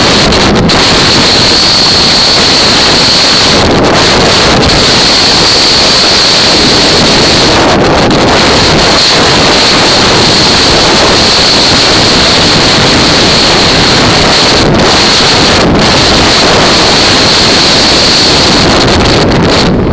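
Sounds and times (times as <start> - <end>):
constant high hiss: 0.0 - 19.2
wind buffeting microphone: 0.0 - 19.9.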